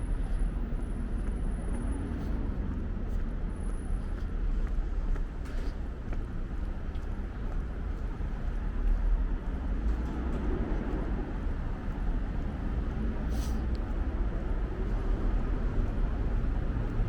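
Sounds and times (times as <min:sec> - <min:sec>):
low rumble of traffic: 0:00.0 - 0:17.0.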